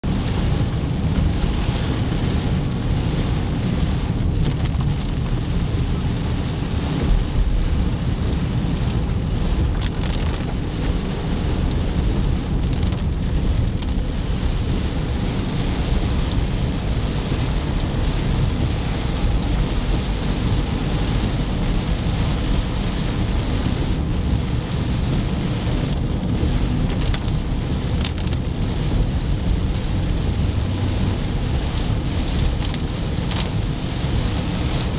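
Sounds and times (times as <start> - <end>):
road noise: 0.0 - 34.9.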